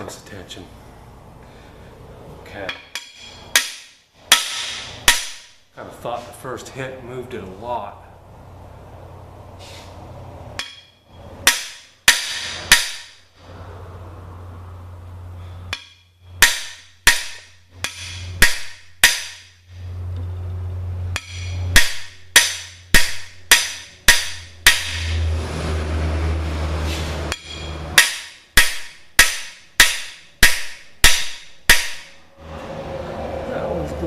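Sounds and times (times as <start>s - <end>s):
hammer striking metal tool: 2.6s - 5.6s, 10.6s - 13.2s, 15.7s - 19.6s, 21.1s - 25.3s, 27.3s - 32.2s.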